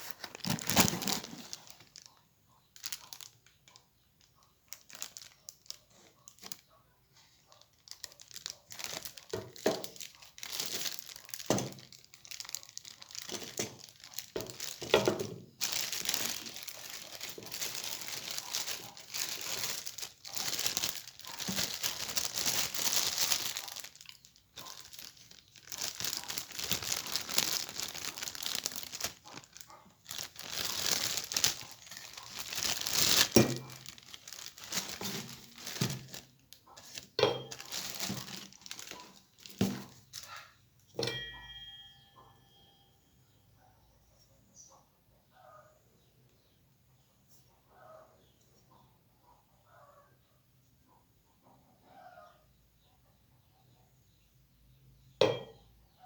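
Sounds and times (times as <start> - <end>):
packaging tearing: 0.0 - 2.1, 7.9 - 40.3
packaging crinkling: 0.0 - 40.4.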